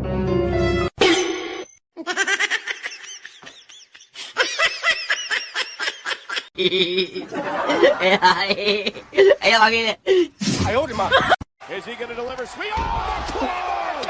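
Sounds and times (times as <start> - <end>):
person laughing high-pitched: 2.0 - 9.4.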